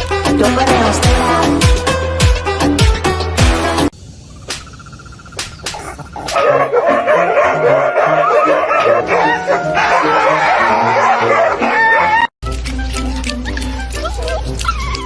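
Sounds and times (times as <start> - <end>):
music with deep bass: 0.0 - 3.9
dog whining and yipping: 5.8 - 12.3, 13.0 - 15.0.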